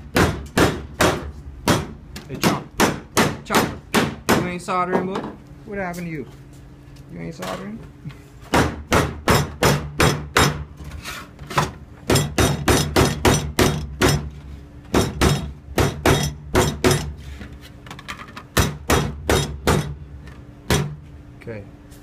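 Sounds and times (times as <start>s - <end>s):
hammer striking sheet copper: 0.0s - 5.2s, 8.5s - 10.7s, 11.6s - 17.2s, 18.5s - 20.0s, 20.7s - 21.0s.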